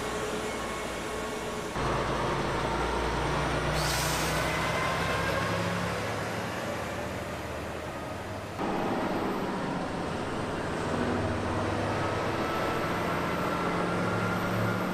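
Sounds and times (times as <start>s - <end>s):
heavy vehicle engines running: 0.0s - 14.9s
road noise: 0.0s - 14.9s.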